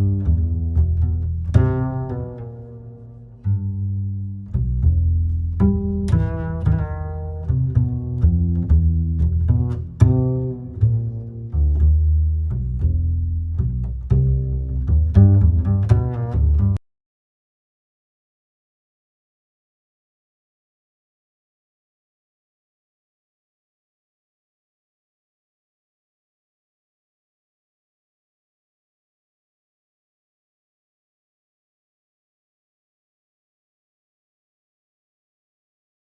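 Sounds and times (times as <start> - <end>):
plucked strings pizzicato music: 0.0 - 16.8.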